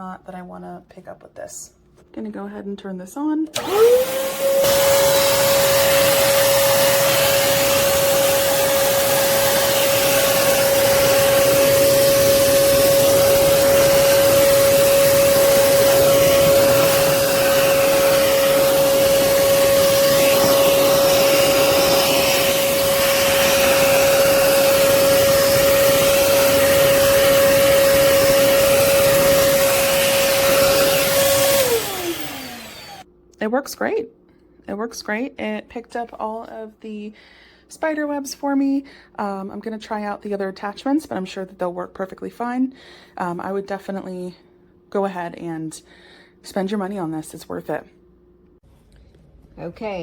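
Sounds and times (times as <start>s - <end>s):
vacuum cleaner running: 3.6s - 33.1s.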